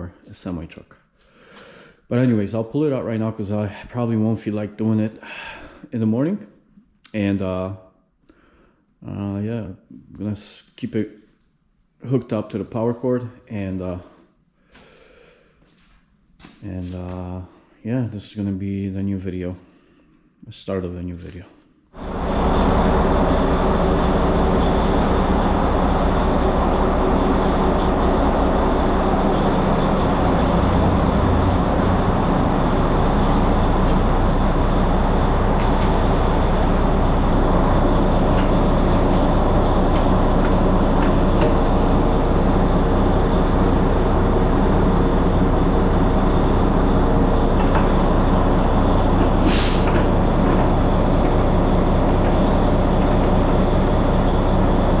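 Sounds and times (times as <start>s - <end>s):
diesel truck engine running: 22.0s - 55.0s
air brake hiss: 49.3s - 50.1s.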